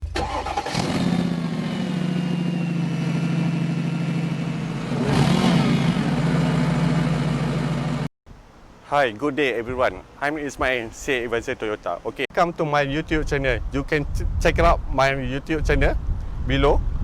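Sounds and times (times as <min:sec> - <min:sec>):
car engine running: 0:01.1 - 0:08.1.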